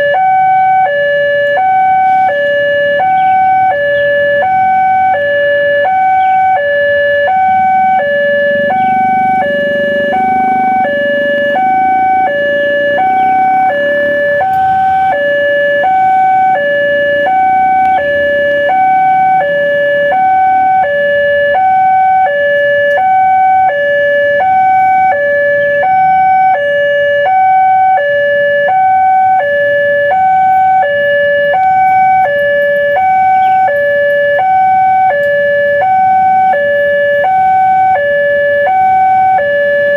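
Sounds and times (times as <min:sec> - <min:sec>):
level crossing two-tone alarm: 0:00.0 - 0:39.9
low rumble: 0:07.0 - 0:16.2.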